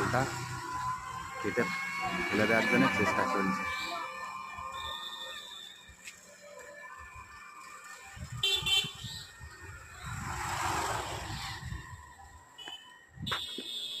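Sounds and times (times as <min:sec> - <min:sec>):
vehicle passing by: 0:00.0 - 0:03.4, 0:10.0 - 0:12.0
vehicle horn toot: 0:02.1 - 0:05.8, 0:08.4 - 0:09.2.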